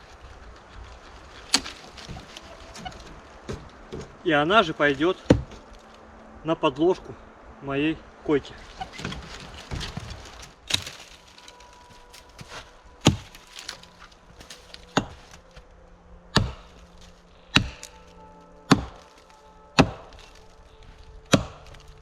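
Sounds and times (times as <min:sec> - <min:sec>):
axe chopping branch: 0:01.4 - 0:04.1, 0:09.0 - 0:15.4, 0:16.4 - 0:18.1, 0:18.7 - 0:20.5, 0:21.3 - 0:22.0.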